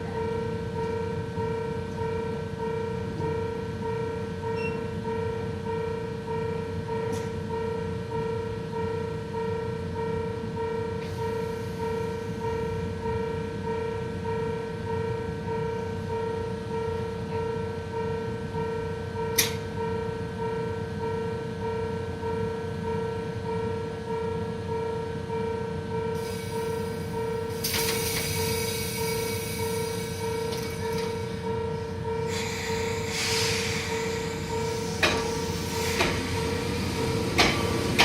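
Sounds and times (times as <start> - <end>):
level crossing warning bell: 0.1 - 27.5
train rumbling: 19.8 - 38.0
loud hiss of air: 26.2 - 30.8, 32.3 - 38.0.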